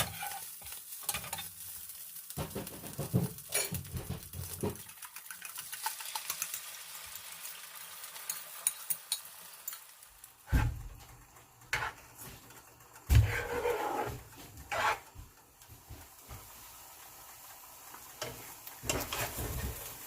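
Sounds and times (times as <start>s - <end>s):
utensil scraping a pan: 0.0s - 1.5s, 11.7s - 15.2s, 18.2s - 20.0s
sausage sizzling in a frying pan: 0.0s - 20.0s.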